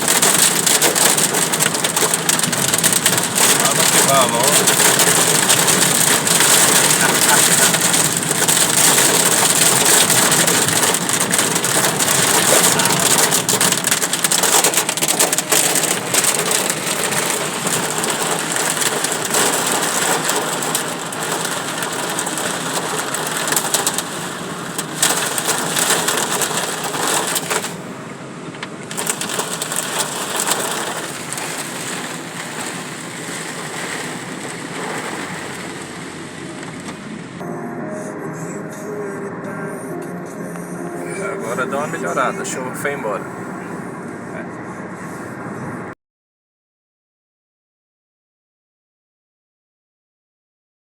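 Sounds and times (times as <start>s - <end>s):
hail and heavy rain on a car: 0.0s - 37.4s, 41.3s - 43.2s.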